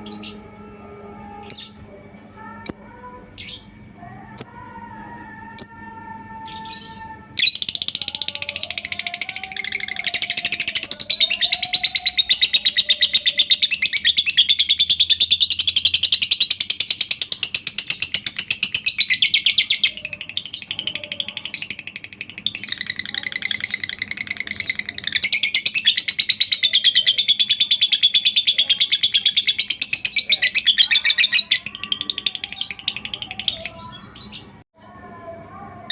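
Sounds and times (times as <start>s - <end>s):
bird chattering trill: 7.4s - 34.6s.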